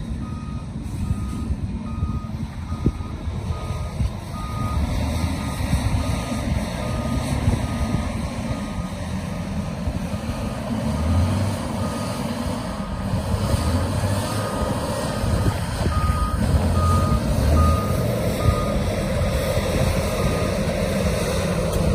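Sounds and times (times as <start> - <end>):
diesel engine running: 0.0 - 21.9
back-up alarm beeping: 0.2 - 9.0, 15.9 - 18.9.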